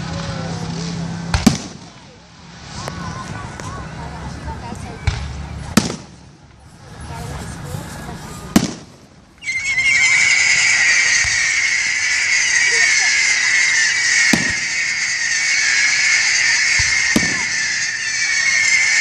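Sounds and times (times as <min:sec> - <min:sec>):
shrill high-pitched din: 0:09.4 - 0:19.0
firework shell bursts: 0:09.8 - 0:19.0.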